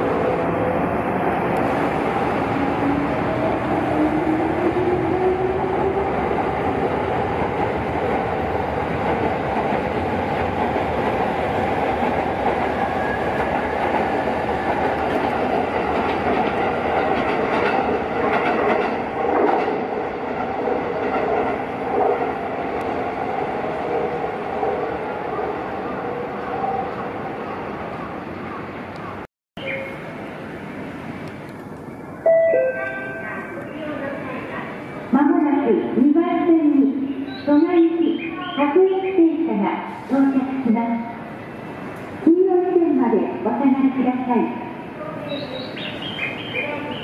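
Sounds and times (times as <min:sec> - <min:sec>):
train wheels knocking: 0:08.9 - 0:22.2.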